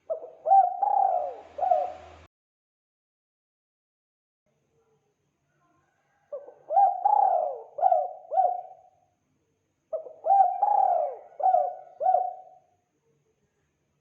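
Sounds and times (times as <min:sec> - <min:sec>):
dove cooing: 0:00.0 - 0:02.3, 0:06.3 - 0:08.9, 0:09.9 - 0:12.7.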